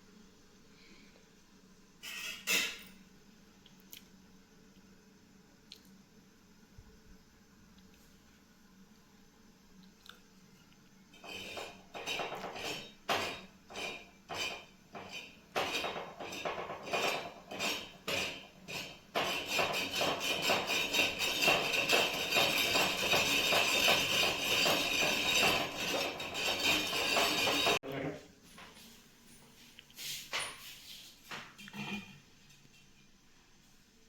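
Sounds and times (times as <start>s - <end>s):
kitchen utensils clinking: 2.0s - 3.0s, 11.2s - 27.8s.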